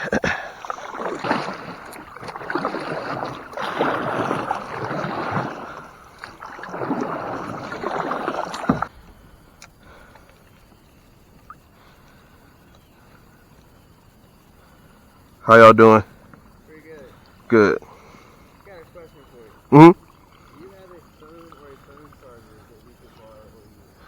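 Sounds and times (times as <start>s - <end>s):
water swishing around kayak: 0.0s - 24.0s.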